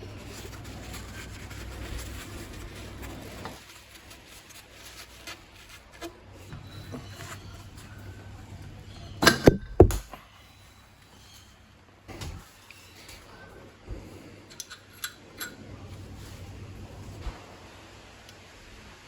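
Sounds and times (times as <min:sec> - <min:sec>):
handling knocks: 0:09.2 - 0:10.2.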